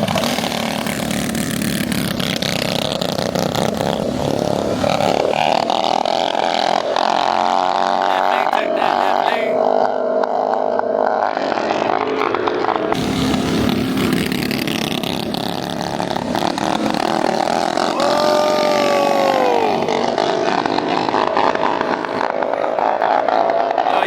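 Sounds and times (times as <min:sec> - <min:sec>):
mini bike engines at full throttle: 0:00.0 - 0:24.0.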